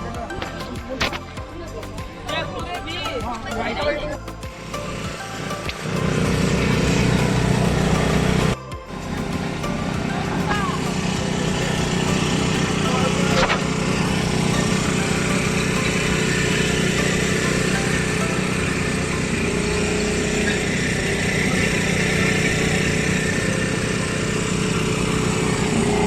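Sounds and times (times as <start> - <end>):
vehicle engine running: 0.0 - 26.0
wind or road noise: 0.0 - 26.0.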